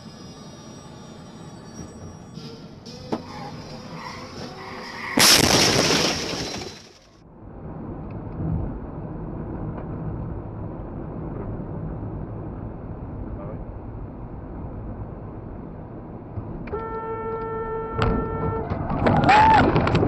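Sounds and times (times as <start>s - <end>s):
vehicle rumbling on road: 0.0s - 20.0s
car crash with shattering: 4.2s - 7.2s.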